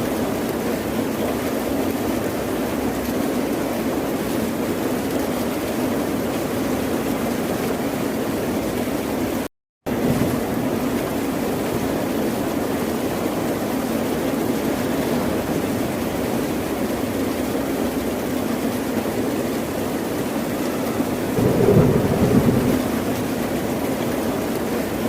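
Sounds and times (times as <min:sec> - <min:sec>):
ocean surf: 0:20.1 - 0:24.2.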